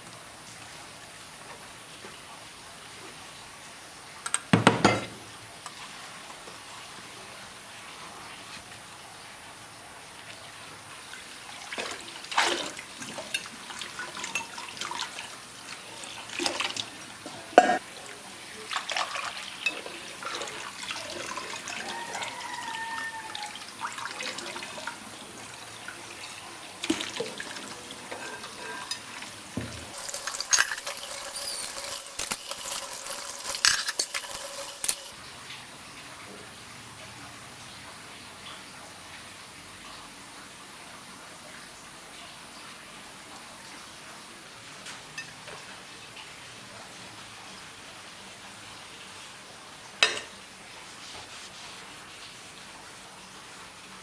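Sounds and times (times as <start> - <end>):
dishes and utensils clinking: 4.3 - 5.2, 14.2 - 14.7, 17.6 - 17.8, 28.1 - 35.2, 50.0 - 50.4.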